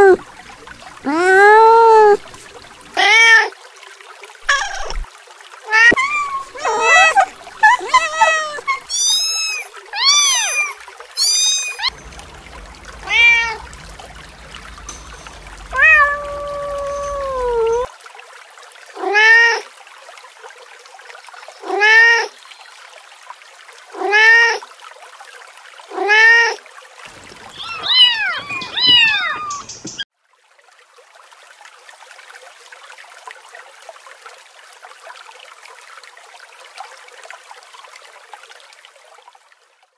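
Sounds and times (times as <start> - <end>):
kittens meowing: 1.1 - 2.4, 4.5 - 5.0, 5.7 - 17.9, 27.2 - 30.0
faint steady hiss: 5.7 - 17.9.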